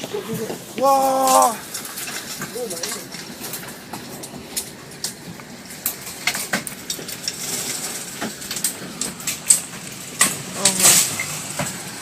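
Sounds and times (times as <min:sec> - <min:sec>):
debris ticking against building: 0:00.0 - 0:12.0
rushing wind: 0:00.0 - 0:12.0.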